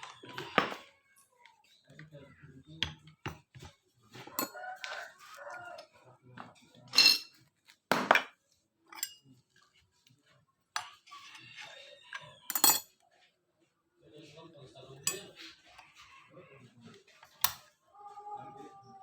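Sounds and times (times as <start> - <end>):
metallic clinks of tools: 4.4 - 4.6, 8.9 - 9.2, 12.5 - 12.9, 15.1 - 15.3
rooster crowing: 4.4 - 5.9.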